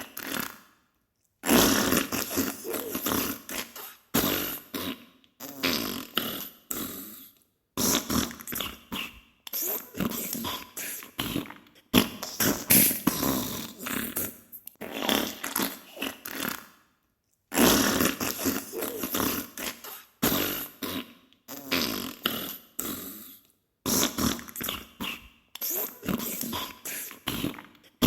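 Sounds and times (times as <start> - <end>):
wet spluttering farts: 1.4 - 3.6, 11.2 - 16.6.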